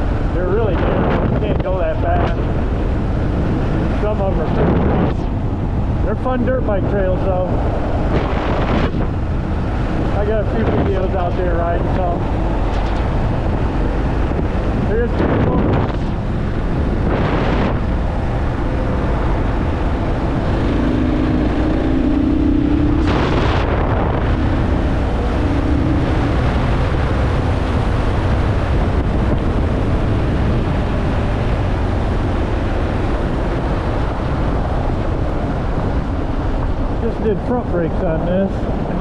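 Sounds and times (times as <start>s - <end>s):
wind rush on microphone: 0.0s - 39.0s
motorcycle engine running: 12.3s - 37.6s.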